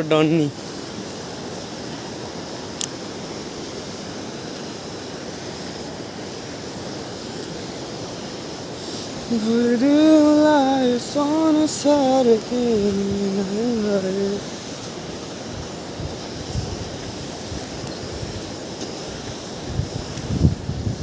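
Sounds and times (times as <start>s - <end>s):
steady rushing noise: 0.0s - 21.0s
person singing wordless tune: 8.9s - 14.6s.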